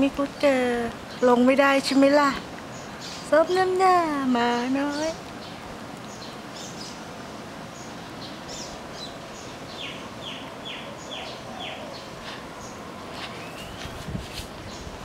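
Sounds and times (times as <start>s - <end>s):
birds chirping: 0.0s - 15.0s
outdoor hiss: 0.0s - 15.0s.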